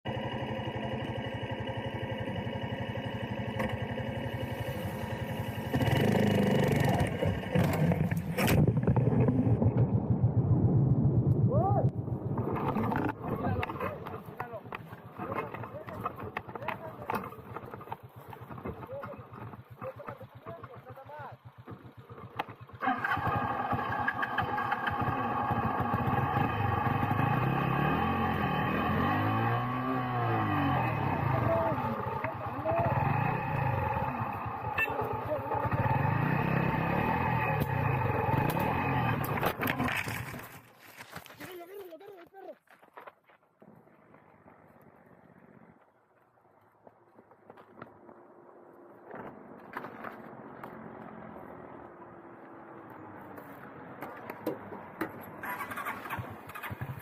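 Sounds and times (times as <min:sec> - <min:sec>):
motorcycle engine running: 0:00.0 - 0:10.8, 0:12.0 - 0:40.7, 0:55.4 - 0:57.0.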